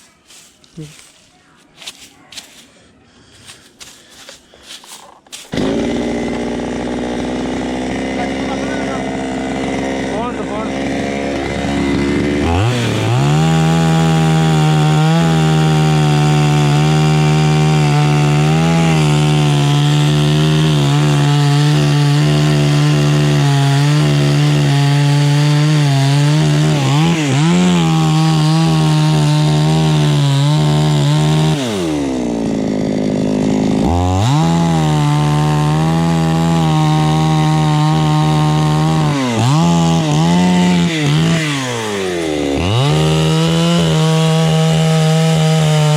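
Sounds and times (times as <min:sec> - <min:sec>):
chainsaw cutting wood: 0:03.4 - 0:45.9.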